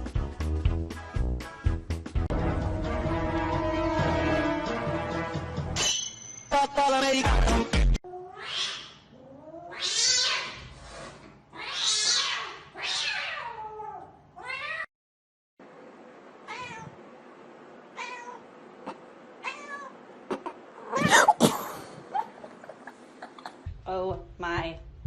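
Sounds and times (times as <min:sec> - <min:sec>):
cat meowing and yowling: 0:08.1 - 0:10.6, 0:11.6 - 0:14.9, 0:19.4 - 0:19.9.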